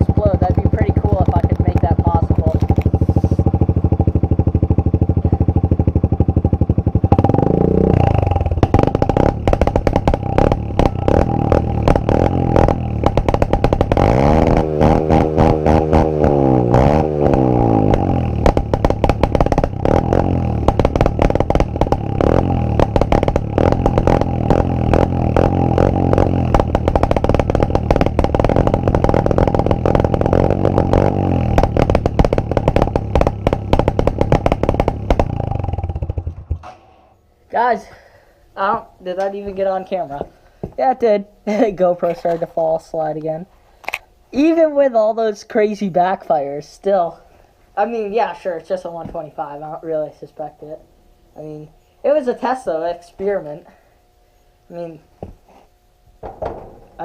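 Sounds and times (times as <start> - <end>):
motorcycle engine idling and revving: 0.0 - 37.0
exhaust popping backfires: 0.0 - 37.2, 56.1 - 57.0.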